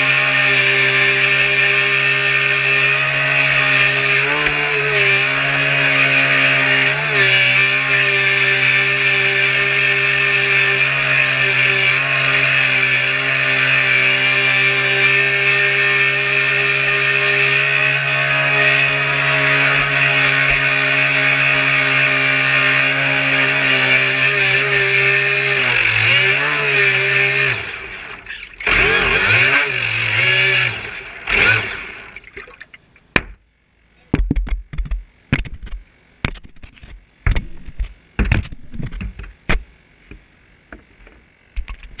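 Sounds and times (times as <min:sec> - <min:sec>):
rc boat motor running: 0:15.0 - 0:32.7
sharp irregular clicks and knocks: 0:34.2 - 0:42.0.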